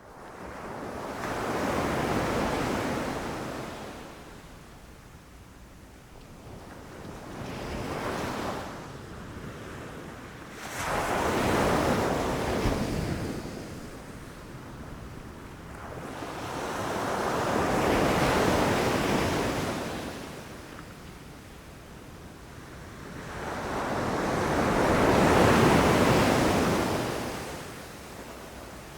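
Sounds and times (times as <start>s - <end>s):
ocean waves crashing on shore: 10.5s - 20.8s, 22.7s - 28.9s.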